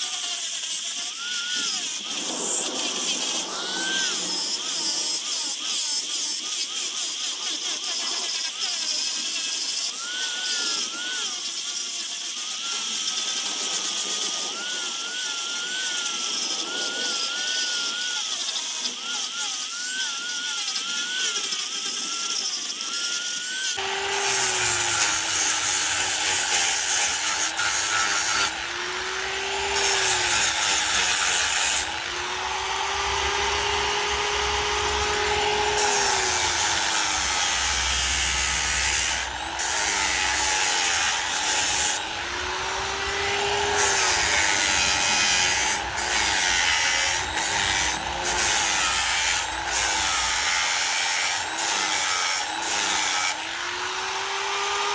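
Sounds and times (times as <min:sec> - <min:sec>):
power tool cutting wood: 0:00.0 - 0:54.9
thin high whine: 0:01.7 - 0:05.6, 0:23.8 - 0:54.9.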